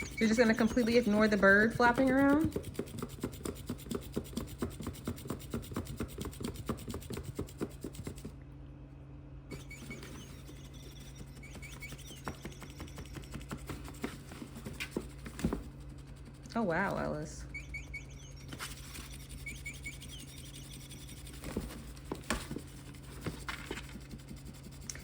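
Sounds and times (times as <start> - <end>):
faint high chirps: 0.0 - 2.2, 9.5 - 14.0, 17.3 - 21.8
low steady hum: 0.0 - 25.0.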